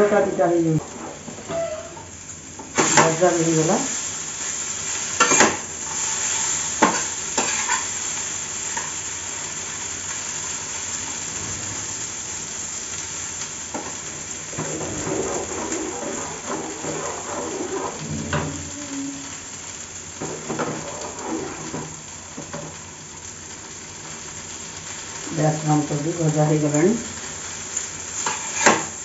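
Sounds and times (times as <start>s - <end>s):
vegetables sizzling in oil: 0.0s - 29.0s
metal spatula scraping pan: 5.2s - 5.6s, 14.5s - 18.8s, 20.5s - 21.8s, 28.2s - 28.9s.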